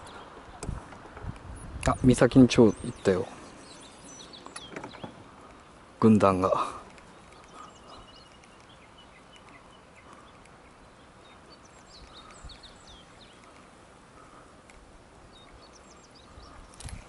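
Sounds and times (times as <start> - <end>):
faint outdoor hiss: 0.0 - 17.0
birds chirping and whistling: 1.4 - 14.5, 15.3 - 17.0.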